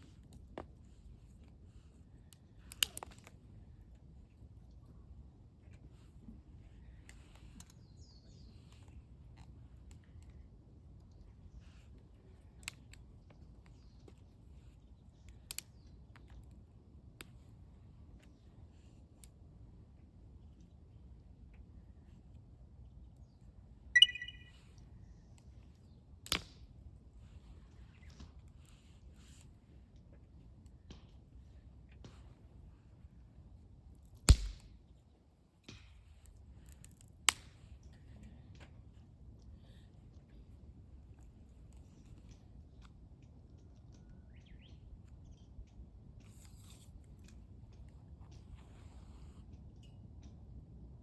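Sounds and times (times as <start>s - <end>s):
metal object clinking and ringing: 24.0s - 24.5s
rising bird chirps: 24.0s - 24.5s
sharp click: 24.0s - 24.5s.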